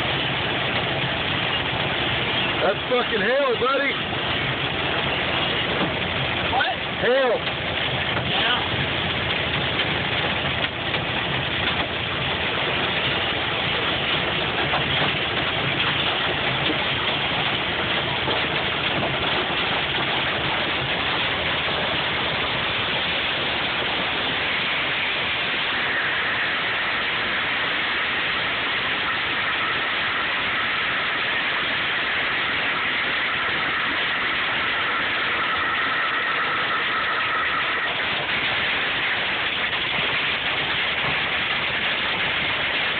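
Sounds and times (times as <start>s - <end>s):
faint steady whine: 0.0s - 42.9s
rain and hail on vehicle roof: 0.0s - 42.9s
vehicle running: 0.0s - 42.9s.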